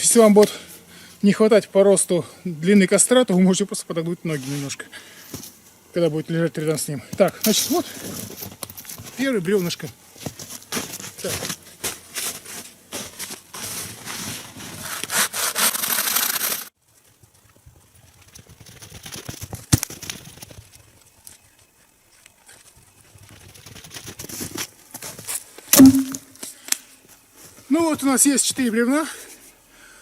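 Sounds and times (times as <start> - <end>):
hand saw cutting log: 14.8 - 16.7
loud thud: 25.8 - 26.3
sharp knock: 25.8 - 26.3.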